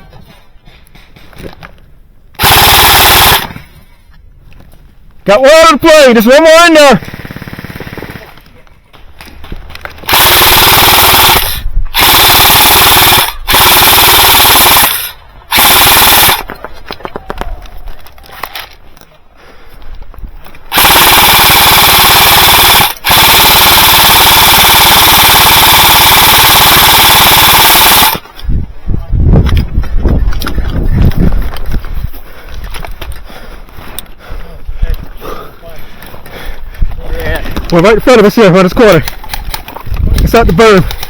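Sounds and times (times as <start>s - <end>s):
airsoft machine gun bursts: 2.4s - 3.6s, 10.0s - 16.5s, 20.7s - 28.2s.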